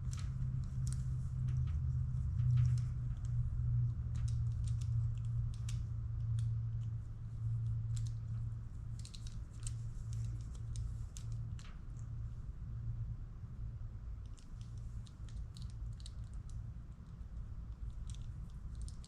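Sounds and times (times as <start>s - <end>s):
clicks and snips of wire work: 0.0s - 7.0s, 7.6s - 12.1s, 14.2s - 19.0s
steady low hum: 0.0s - 19.0s.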